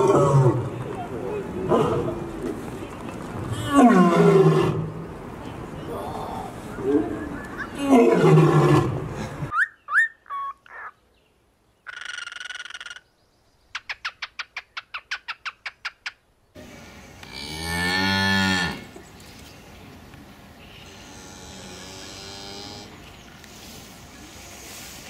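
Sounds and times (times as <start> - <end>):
cow mooing: 17.2 - 18.8, 20.9 - 23.0.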